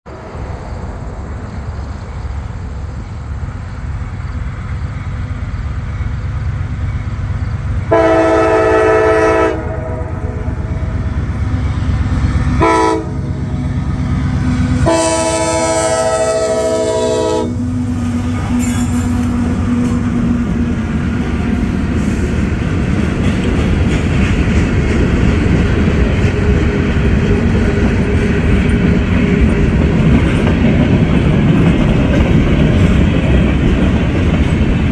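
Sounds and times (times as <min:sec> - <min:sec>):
train rumble and wheel noise: 0:00.0 - 0:34.9
train horn blasts: 0:07.8 - 0:20.1.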